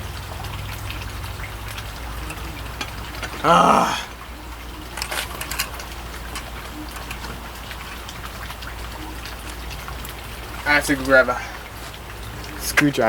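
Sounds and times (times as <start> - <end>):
desoldering clicks and crackles: 4.8 - 10.2.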